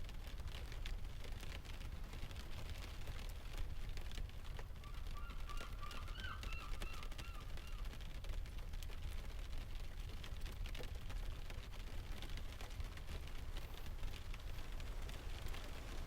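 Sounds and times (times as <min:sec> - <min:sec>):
bird calling: 0:04.8 - 0:07.8
fire crackling ticks: 0:07.9 - 0:16.0
low rumble of surf: 0:08.4 - 0:16.0.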